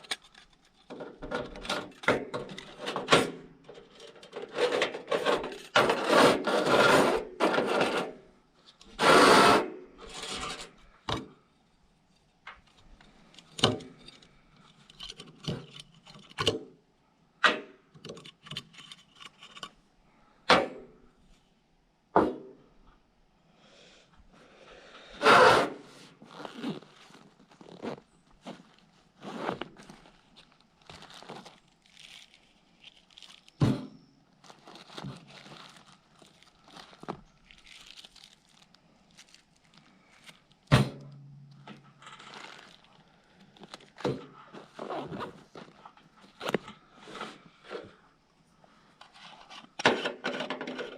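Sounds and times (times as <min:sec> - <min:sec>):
camp gear rubbing and scraping: 0:01.0 - 0:08.3, 0:08.9 - 0:10.8, 0:25.1 - 0:32.5, 0:33.1 - 0:37.2, 0:42.0 - 0:48.1.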